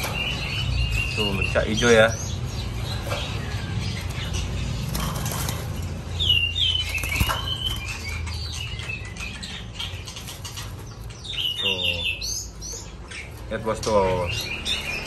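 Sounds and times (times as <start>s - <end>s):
songbirds chirping: 0.0s - 15.0s
rustling against cage wire: 1.1s - 8.9s
wings fluttering: 6.8s - 8.0s.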